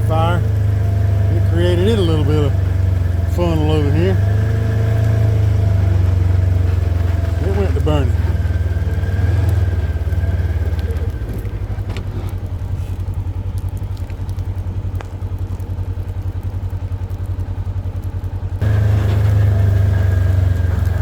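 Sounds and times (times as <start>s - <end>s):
small engine running: 0.0s - 21.0s
faint clicks: 4.4s - 21.0s.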